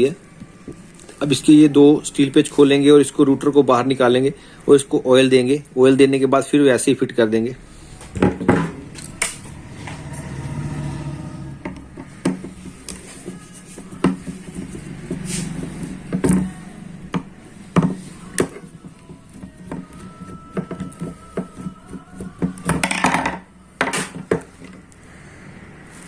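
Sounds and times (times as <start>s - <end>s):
screwdriver and metal parts clicking: 8.9s - 10.3s.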